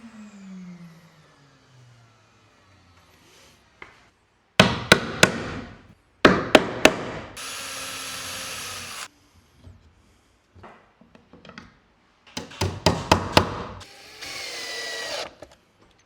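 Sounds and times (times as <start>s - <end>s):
hammer striking wood: 4.6s - 7.4s, 12.4s - 13.8s.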